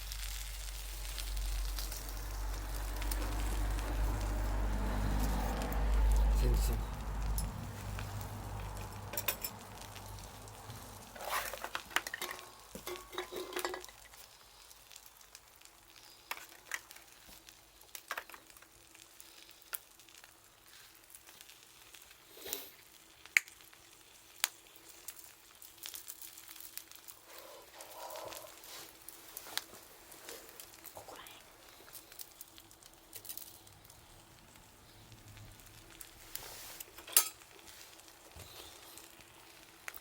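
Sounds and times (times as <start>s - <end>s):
faint hiss: 0.0s - 40.0s
wood fire crackling: 0.0s - 40.0s
low rumble: 0.6s - 11.2s.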